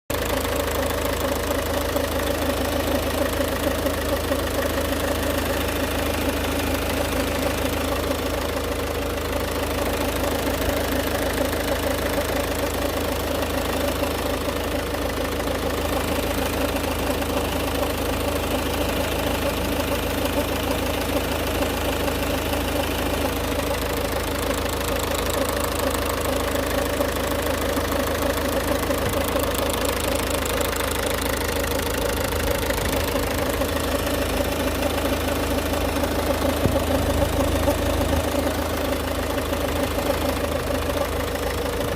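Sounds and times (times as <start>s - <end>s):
diesel engine running: 0.1s - 41.9s
engine grinding noise: 0.1s - 41.9s.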